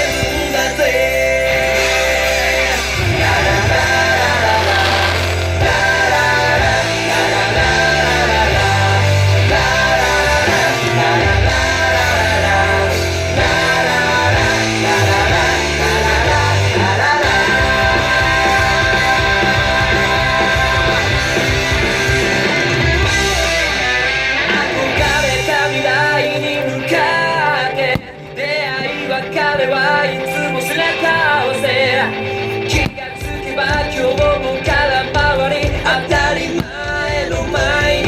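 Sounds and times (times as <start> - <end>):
rock music with guitar and bass: 0.0 - 38.0.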